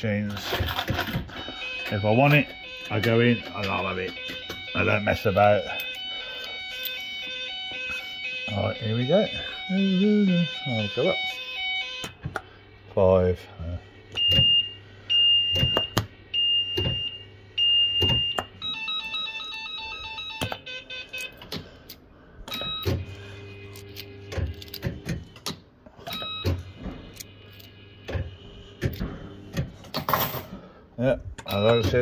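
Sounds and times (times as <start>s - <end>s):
fruit machine electronic beeps: 1.2s - 12.2s, 14.1s - 21.4s, 26.1s - 26.8s, 31.4s - 32.0s
stepped electronic jingle tones: 14.2s - 21.1s.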